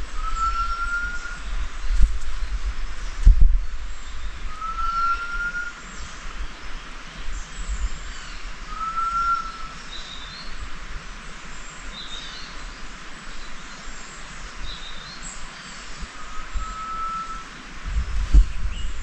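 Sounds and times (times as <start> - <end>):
outdoor background noise: 0.0 - 19.0
bird whistled note: 0.2 - 1.4, 4.5 - 5.8, 8.7 - 9.7, 16.2 - 17.5.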